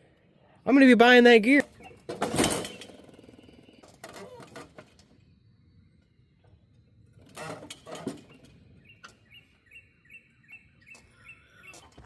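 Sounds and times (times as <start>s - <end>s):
small bird chirping: 1.7s - 4.5s, 8.2s - 12.0s.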